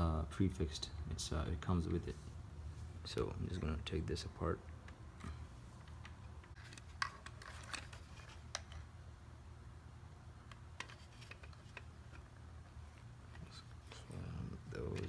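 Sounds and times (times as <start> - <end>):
low steady hum: 0.0 - 15.0
plastic parts clicking: 4.8 - 8.9, 10.4 - 12.3.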